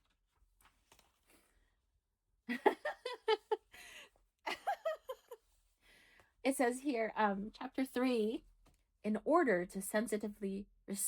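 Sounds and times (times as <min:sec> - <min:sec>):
woman giggling: 0:02.5 - 0:05.4.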